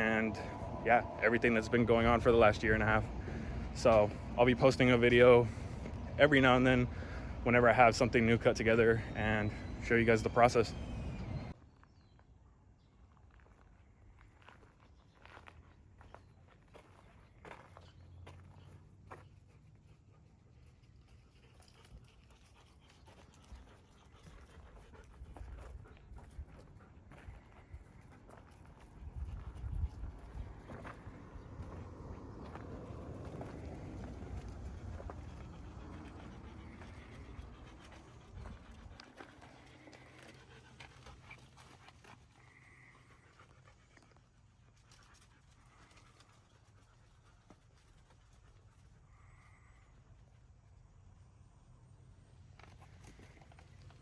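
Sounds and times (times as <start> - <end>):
faint low rumble: 0.0 - 11.6, 17.0 - 47.4
low hum: 0.0 - 11.6.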